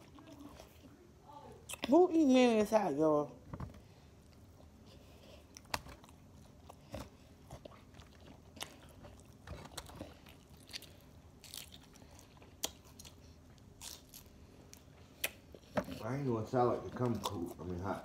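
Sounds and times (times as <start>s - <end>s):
soft chewing: 0.0s - 2.0s, 3.5s - 18.0s
crisp food crunches: 5.6s - 14.4s.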